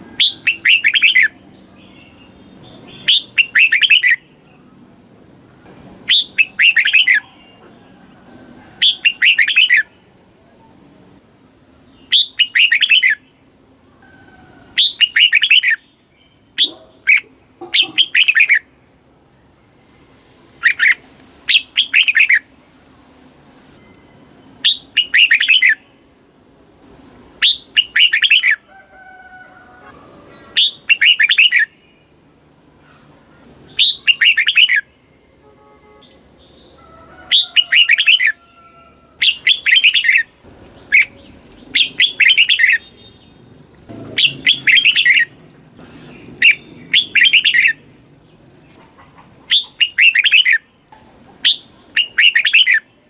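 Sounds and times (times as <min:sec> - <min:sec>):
bulbul warbling song: 0:00.0 - 0:01.4, 0:02.7 - 0:04.3, 0:06.1 - 0:07.6, 0:08.8 - 0:10.0, 0:14.8 - 0:18.7, 0:20.6 - 0:22.5, 0:23.9 - 0:25.9, 0:30.4 - 0:31.8, 0:33.7 - 0:35.0, 0:39.2 - 0:52.9
faint bird whistles: 0:49.5 - 0:50.6.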